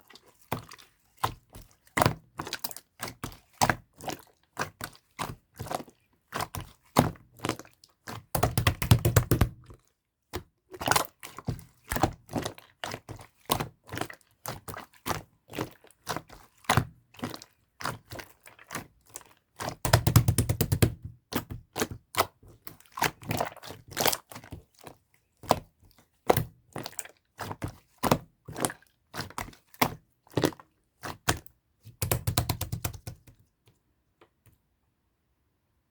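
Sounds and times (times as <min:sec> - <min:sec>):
slime clicking and popping: 0:08.4 - 0:09.7, 0:19.8 - 0:21.1, 0:32.0 - 0:33.2.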